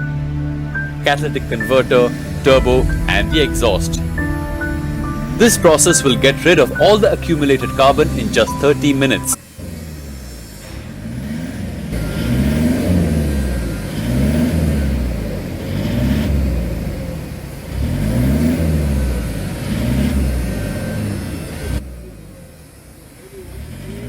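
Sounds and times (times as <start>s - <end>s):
car engine revving: 9.4s - 21.3s.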